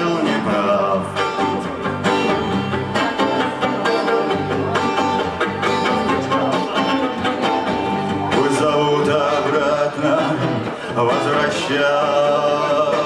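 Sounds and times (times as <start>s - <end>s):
acoustic guitar strumming: 0.0s - 13.0s
violin melody: 0.5s - 10.7s.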